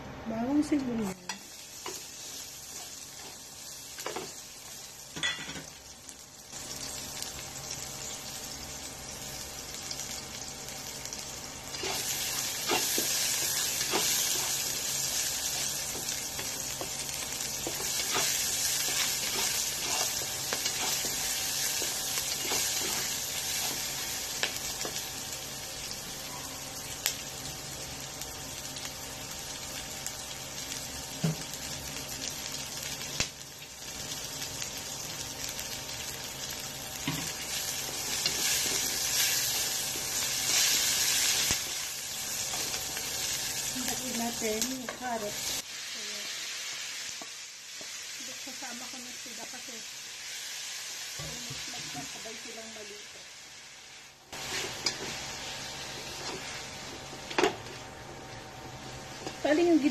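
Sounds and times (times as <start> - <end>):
onion sizzling in hot oil: 0.3 - 59.9.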